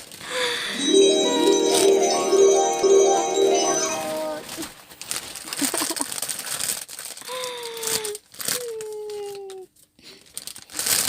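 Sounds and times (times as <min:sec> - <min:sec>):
gift wrapping crinkling: 0:04.5 - 0:09.5, 0:10.2 - 0:11.0.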